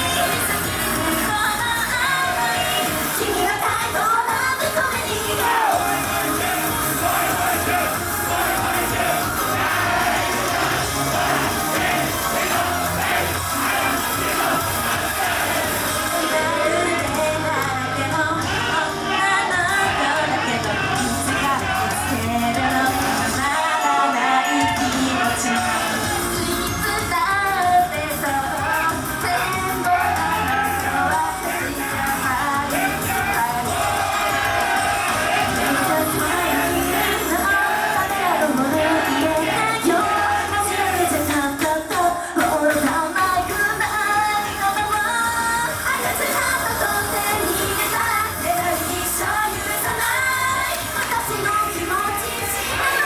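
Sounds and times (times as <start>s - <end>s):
women singing over pop music: 0.0s - 53.0s
audience shouting along: 5.3s - 17.2s, 18.4s - 26.5s, 28.6s - 41.3s.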